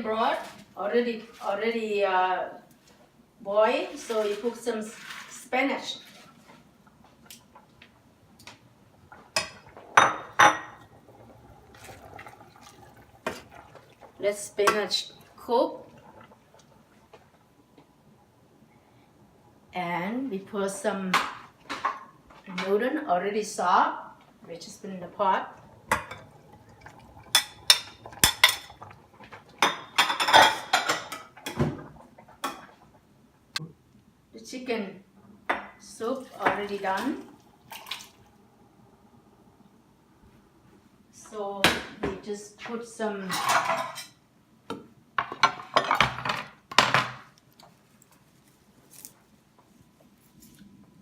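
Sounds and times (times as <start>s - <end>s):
broth simmering: 4.0s - 34.4s, 35.0s - 41.4s.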